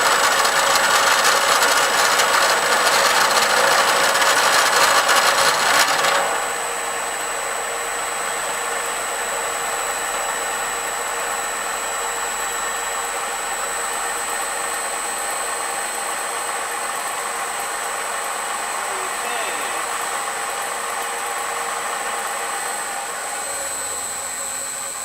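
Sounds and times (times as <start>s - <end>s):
spindle high whine: 18.6s - 21.5s, 22.2s - 25.0s.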